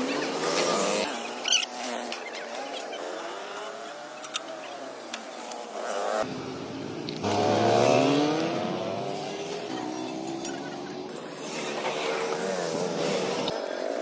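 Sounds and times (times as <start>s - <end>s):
truck engine revving: 6.2s - 13.6s.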